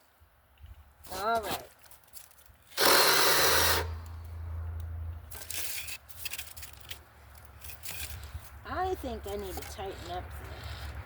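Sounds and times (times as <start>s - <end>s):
mini chainsaw cutting branch: 2.7s - 4.1s.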